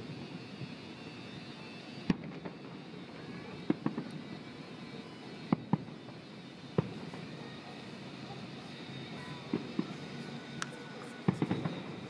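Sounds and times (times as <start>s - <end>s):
steady background noise: 0.0s - 12.0s
fireworks bangs: 6.8s - 7.4s, 9.2s - 12.0s.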